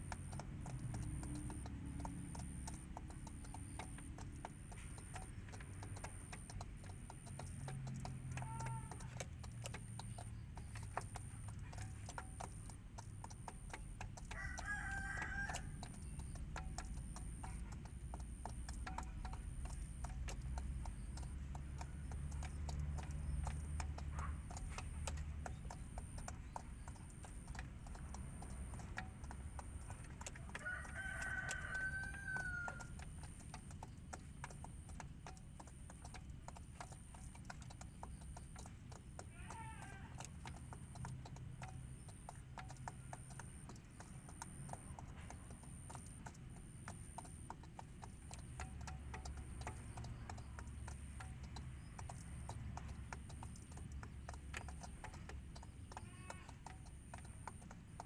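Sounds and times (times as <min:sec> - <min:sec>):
faint ticking: 0:00.0 - 0:58.0.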